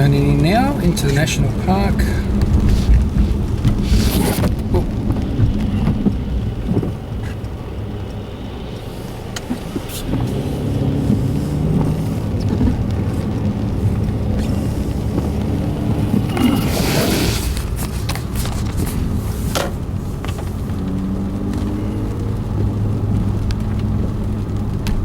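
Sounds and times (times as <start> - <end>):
car engine and road rumble: 0.0 - 25.0
short rush of noise: 16.0 - 18.0.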